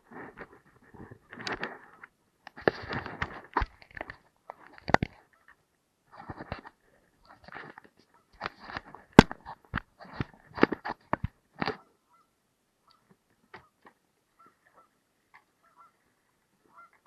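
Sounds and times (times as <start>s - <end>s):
geese honking: 12.0s - 12.3s, 15.6s - 16.0s, 16.6s - 17.0s.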